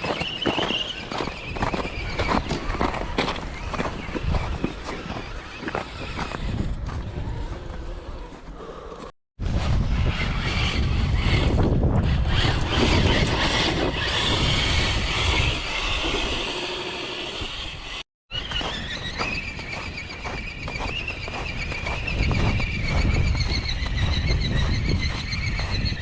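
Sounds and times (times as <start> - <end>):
rc car motor running: 2.8 - 6.7, 9.9 - 18.0
high rc car motor whine: 2.8 - 7.9, 9.7 - 18.0
tyres churning: 12.1 - 18.0.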